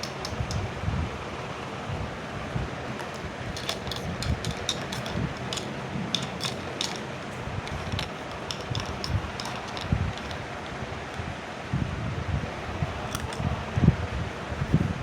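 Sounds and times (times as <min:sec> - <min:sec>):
plastic toy pieces clicking: 0:00.0 - 0:00.7, 0:03.0 - 0:11.3, 0:13.1 - 0:13.5.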